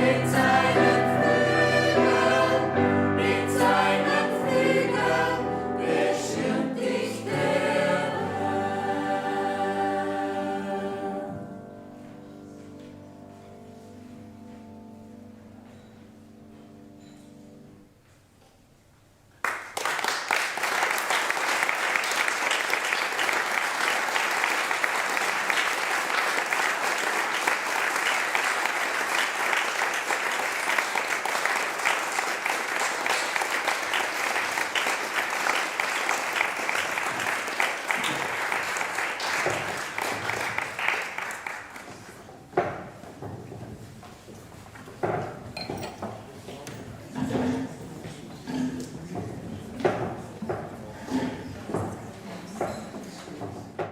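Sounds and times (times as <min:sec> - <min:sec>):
audience applause: 0:19.4 - 0:42.2.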